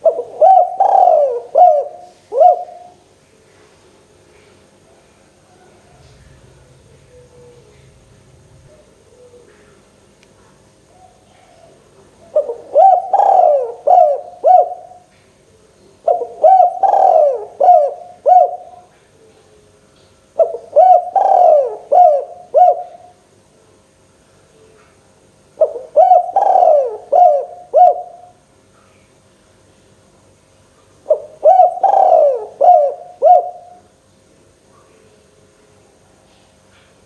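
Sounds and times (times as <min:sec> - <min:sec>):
dove cooing: 0:00.0 - 0:03.1, 0:05.5 - 0:09.9, 0:10.9 - 0:15.1, 0:16.0 - 0:19.7, 0:20.4 - 0:23.2, 0:25.6 - 0:28.4, 0:31.1 - 0:33.9.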